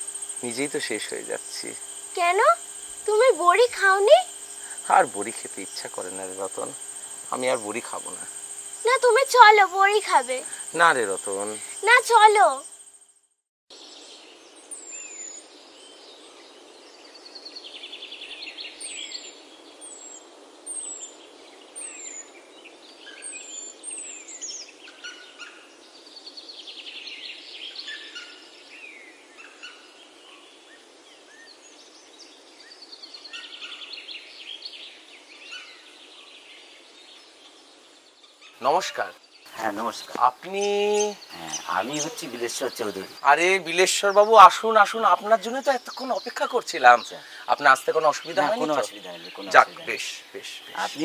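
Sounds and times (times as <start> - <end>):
birds chirping downward: 0.0 - 12.7, 37.2 - 51.0
background hiss: 0.0 - 12.9, 13.8 - 51.0
bird rattling trills: 0.0 - 13.3.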